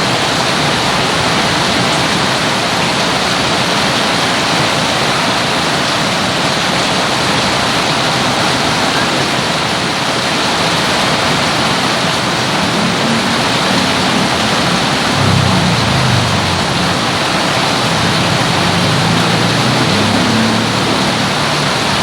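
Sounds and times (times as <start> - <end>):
heavy rain falling: 0.0 - 22.0
low wavering hum: 12.5 - 22.0.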